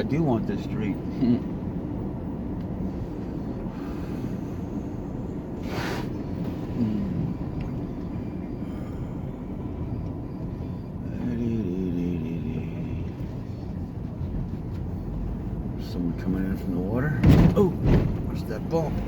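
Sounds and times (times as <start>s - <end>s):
truck engine and tyres rumbling: 0.0s - 19.0s
brief hiss: 5.6s - 6.1s.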